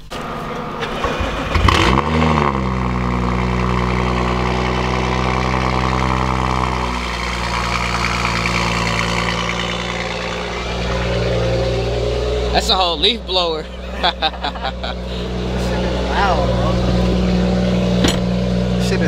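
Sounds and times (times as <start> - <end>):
starter motor cranking: 0.0 - 2.2
car engine idling: 0.0 - 19.0.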